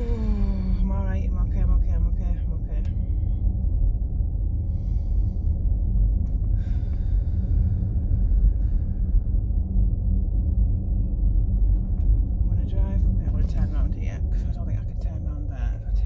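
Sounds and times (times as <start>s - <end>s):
road and tyre rumble in car: 0.0s - 16.0s.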